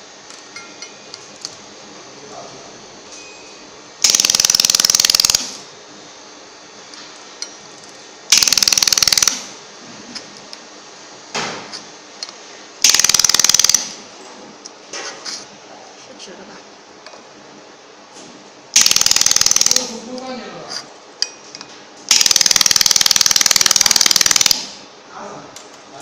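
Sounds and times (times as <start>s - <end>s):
laser welder buzzing pulses: 18.7s - 20.1s.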